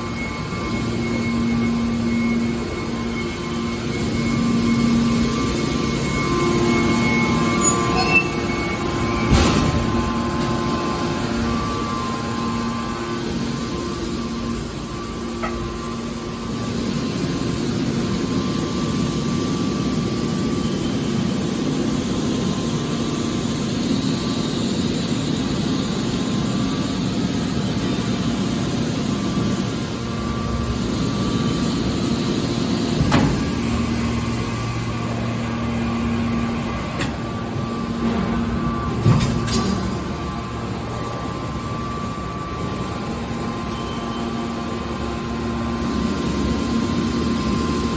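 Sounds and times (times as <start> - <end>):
baler machine hum: 0.0 - 47.9.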